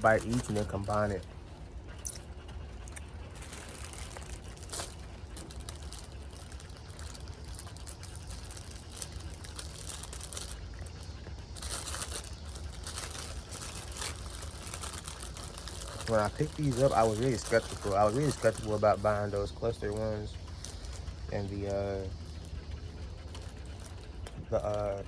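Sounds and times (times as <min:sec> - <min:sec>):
plastic wrapper crinkling: 0:00.0 - 0:01.2, 0:02.8 - 0:21.2
low steady hum: 0:00.0 - 0:25.0.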